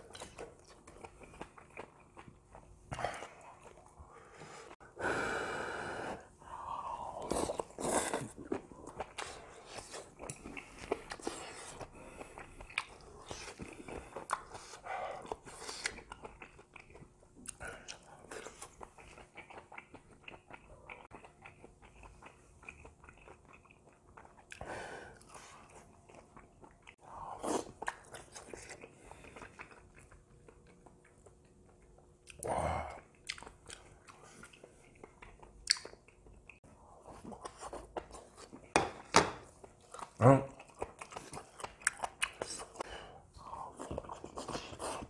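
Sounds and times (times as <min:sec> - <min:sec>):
wet mouth chewing and smacking: 0:00.0 - 0:03.9, 0:07.3 - 0:24.6, 0:25.2 - 0:27.0, 0:33.1 - 0:36.6, 0:39.5 - 0:42.8
person breathing: 0:04.0 - 0:08.3.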